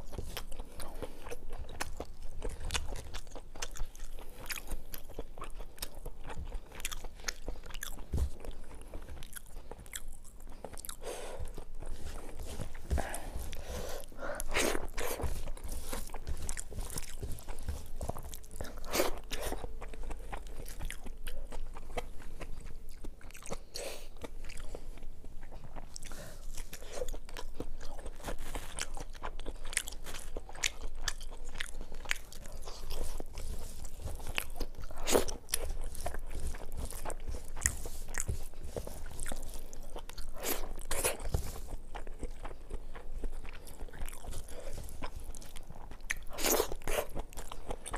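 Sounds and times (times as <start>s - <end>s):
chewing and crunching food: 0.0s - 47.9s.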